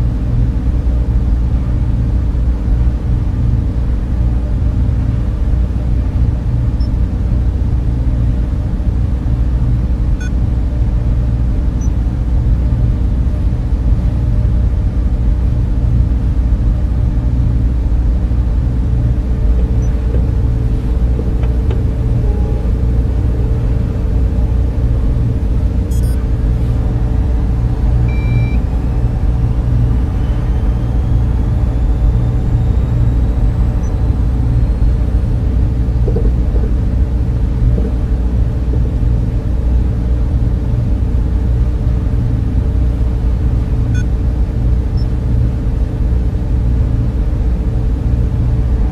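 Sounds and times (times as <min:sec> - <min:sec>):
server fans humming: 0:00.0 - 0:48.9
faint rising whine: 0:15.4 - 0:48.9.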